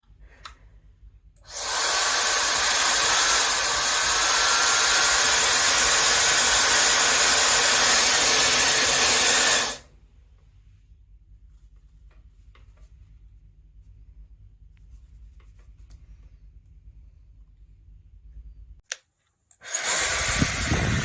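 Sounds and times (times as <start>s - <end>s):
hair dryer running: 1.5s - 9.8s, 19.6s - 21.0s.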